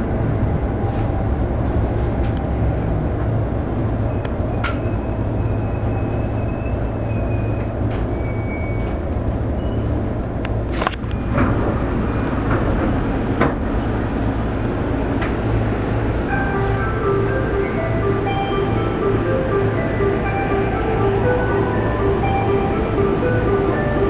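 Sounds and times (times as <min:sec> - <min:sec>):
commuter train rumble: 0:00.0 - 0:24.0.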